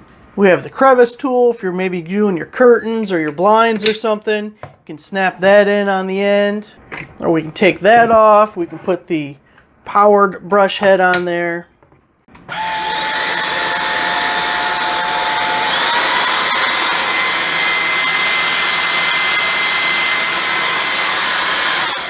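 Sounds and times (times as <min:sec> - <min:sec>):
vacuum motor whining: 0:12.4 - 0:22.0.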